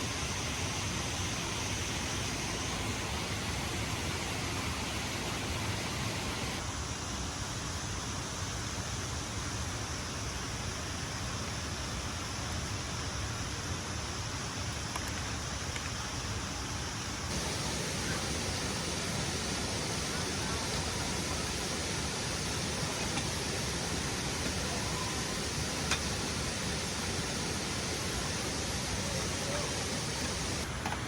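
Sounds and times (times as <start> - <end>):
waterfall rushing: 2.7 - 6.6, 17.3 - 30.7.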